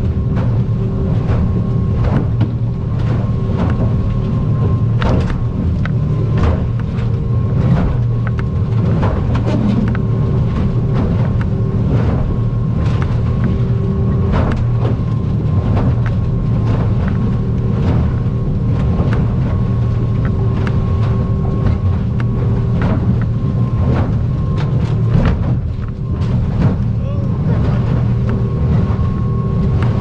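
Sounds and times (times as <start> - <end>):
boat engine drone: 0.0 - 30.0
hull slapping on waves: 0.0 - 30.0.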